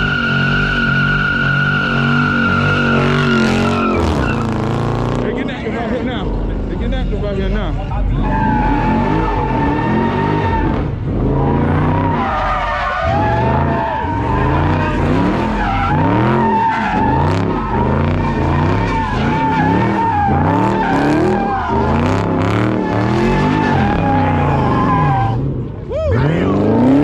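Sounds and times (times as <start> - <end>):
tyre squeal: 0.0 - 4.6, 8.0 - 26.6
car engine revving: 0.0 - 27.0.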